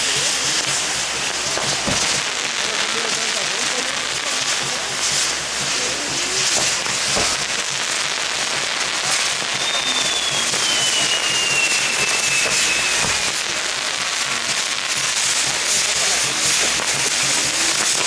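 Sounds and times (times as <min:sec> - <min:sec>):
fireworks crackling and popping: 0:00.0 - 0:18.0
long falling whistle: 0:09.5 - 0:13.3.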